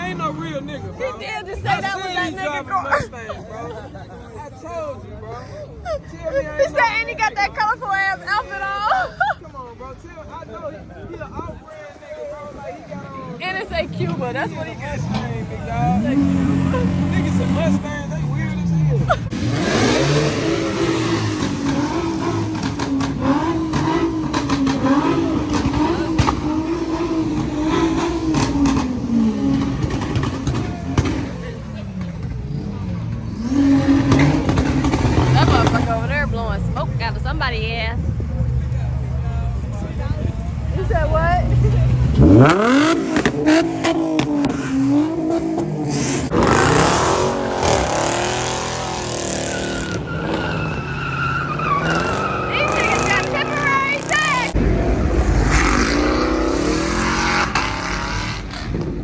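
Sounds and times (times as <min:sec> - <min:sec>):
car engine revving high: 0:15.0 - 0:37.3, 0:41.4 - 0:59.0
exhaust pops: 0:19.7 - 0:32.5, 0:33.8 - 0:37.1, 0:41.6 - 0:46.9, 0:51.9 - 0:59.0
engine sharp cracks: 0:54.5 - 0:59.0.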